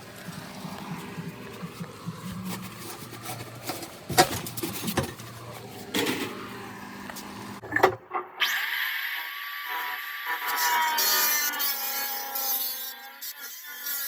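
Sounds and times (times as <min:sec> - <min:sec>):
low hum: 0:00.0 - 0:08.5
tools clattering: 0:01.4 - 0:06.4.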